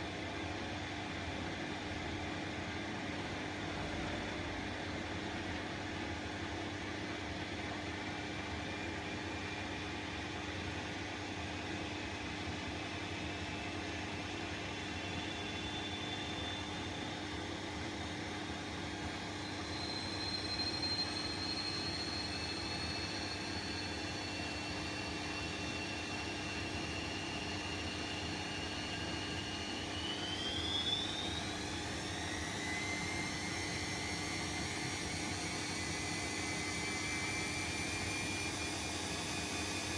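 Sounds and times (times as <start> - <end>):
washing machine motor whine: 13.8 - 39.9.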